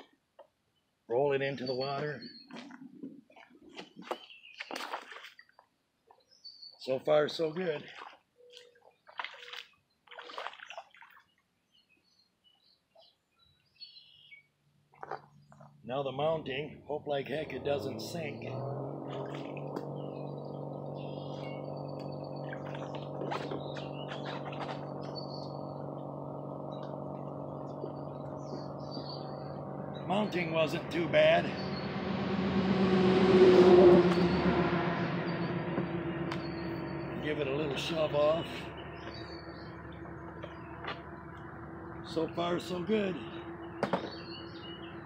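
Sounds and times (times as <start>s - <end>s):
birds chirping: 0.6s - 10.1s, 11.2s - 45.0s
water sloshing and splashing: 2.5s - 5.8s, 7.4s - 11.5s, 19.0s - 21.4s, 22.0s - 25.9s
steady low hum: 18.7s - 45.0s.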